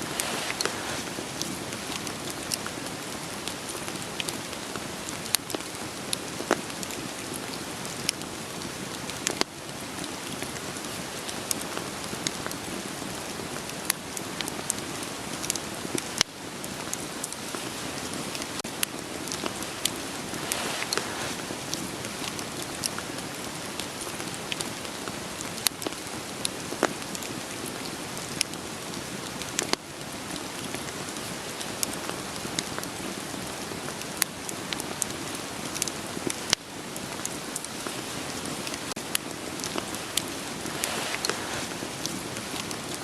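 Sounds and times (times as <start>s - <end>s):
rain hiss: 0.0s - 43.0s
firewood popping and crackling: 0.1s - 9.5s, 13.8s - 24.7s, 28.2s - 29.8s, 37.2s - 43.0s.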